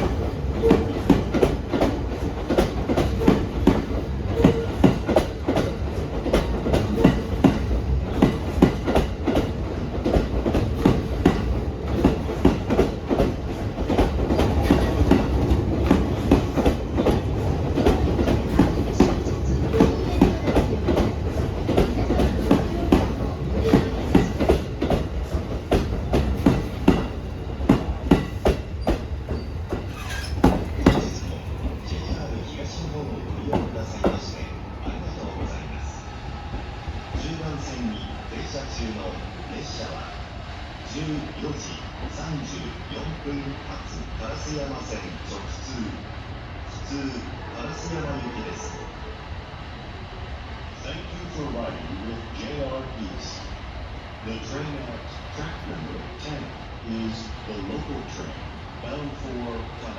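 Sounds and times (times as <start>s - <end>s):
train wheels clacking over rail joints: 0.0s - 34.5s
train rolling rumble: 0.0s - 59.9s.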